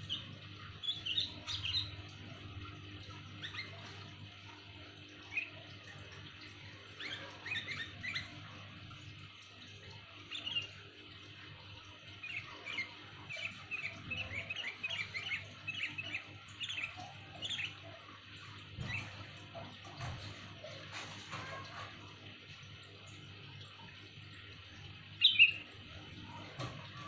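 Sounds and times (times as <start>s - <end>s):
bird chirping: 0.0s - 2.1s, 3.4s - 4.0s, 7.0s - 8.4s, 10.3s - 10.8s, 12.1s - 18.0s, 25.2s - 25.7s.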